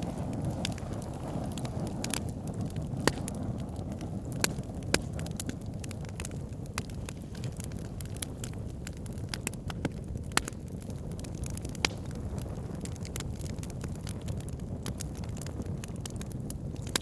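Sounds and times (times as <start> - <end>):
fire crackling and popping: 0.0 - 17.0
fire flames rumbling: 0.0 - 17.0.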